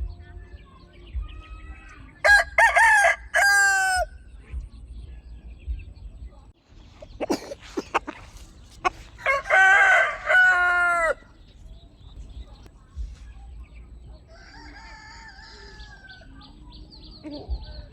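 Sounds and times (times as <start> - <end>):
rooster crowing: 2.2 - 4.2, 9.2 - 11.3, 14.3 - 16.3
chicken calls: 6.9 - 11.7.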